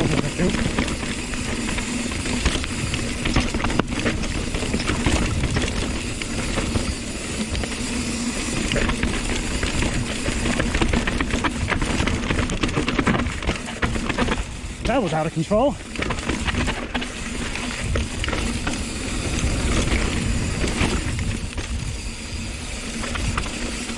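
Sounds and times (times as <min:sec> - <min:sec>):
bike rattling over rocks: 0:00.0 - 0:23.9
bike tyre noise: 0:00.0 - 0:23.9.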